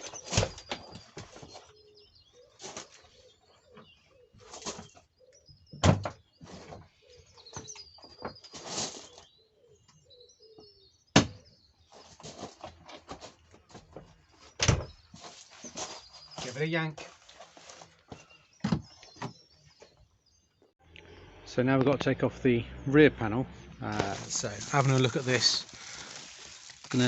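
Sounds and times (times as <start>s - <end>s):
birds chirping faintly: 0.0s - 27.0s.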